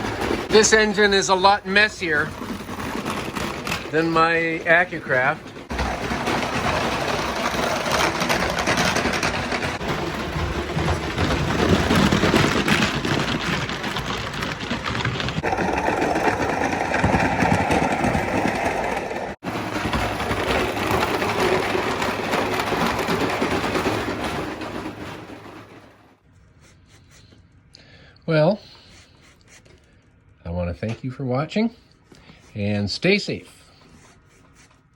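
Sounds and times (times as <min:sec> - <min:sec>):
steam locomotive chuffing: 0:00.0 - 0:26.2.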